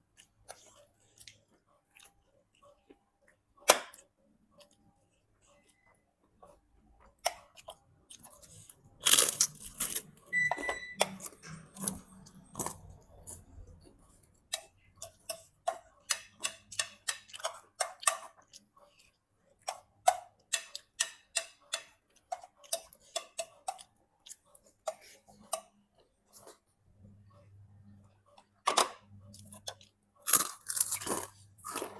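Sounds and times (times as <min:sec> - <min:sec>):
short beep: 0:10.3 - 0:11.1.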